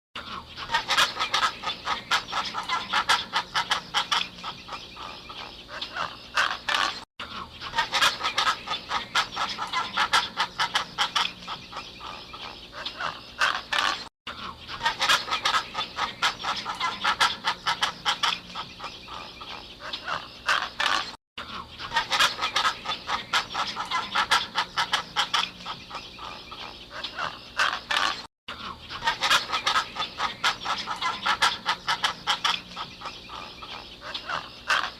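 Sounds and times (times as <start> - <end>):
flock of waterbirds calling: 0.2 - 34.9.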